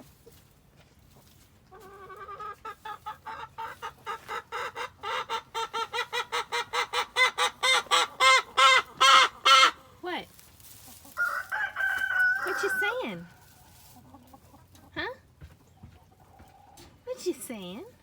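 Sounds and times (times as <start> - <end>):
hen cackling: 1.7 - 10.0, 11.0 - 14.6.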